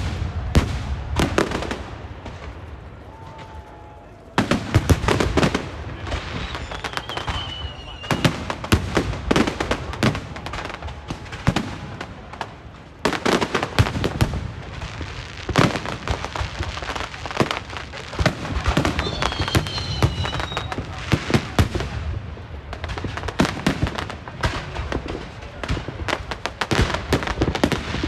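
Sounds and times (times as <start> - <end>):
fireworks bangs and crackles: 0.0 - 28.0
firework whistle: 6.0 - 8.7, 18.6 - 21.2.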